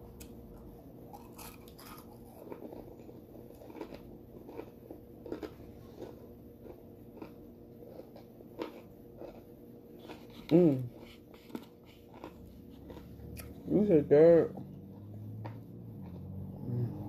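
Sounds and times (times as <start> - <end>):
soft crunching while chewing: 0.1 - 17.0.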